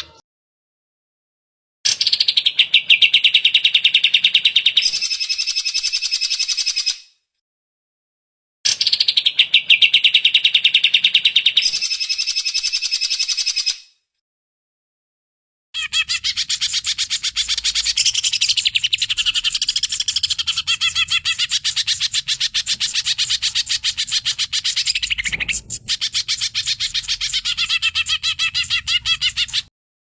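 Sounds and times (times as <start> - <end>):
bird chattering song: 15.8 - 29.7.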